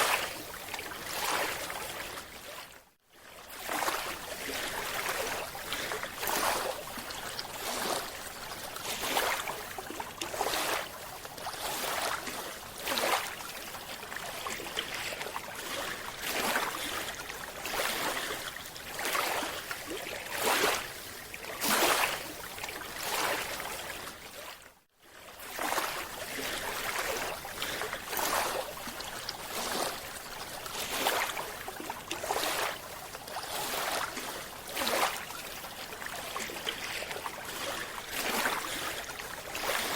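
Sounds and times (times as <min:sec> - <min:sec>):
water sloshing and splashing: 0:00.0 - 0:39.9.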